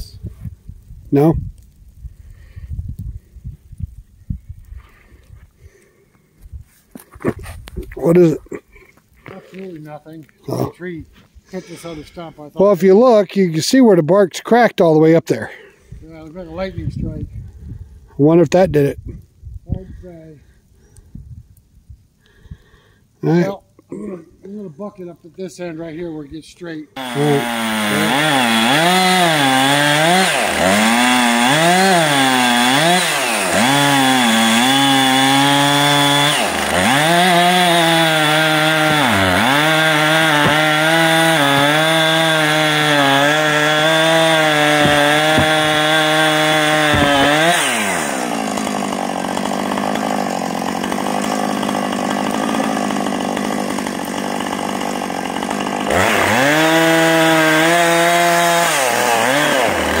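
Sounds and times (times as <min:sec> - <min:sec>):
chainsaw cutting log: 0:27.0 - 1:00.0.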